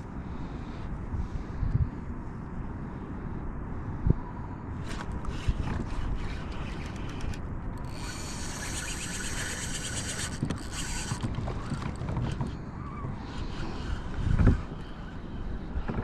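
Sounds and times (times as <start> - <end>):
wind: 0.0 - 16.0
fishing reel whirring and clicking: 4.8 - 12.6, 13.2 - 15.2.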